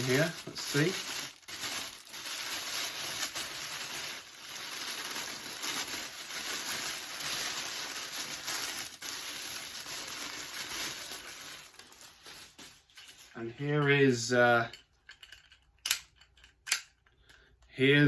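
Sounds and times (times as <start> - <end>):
packaging crinkling: 0.0 - 13.3.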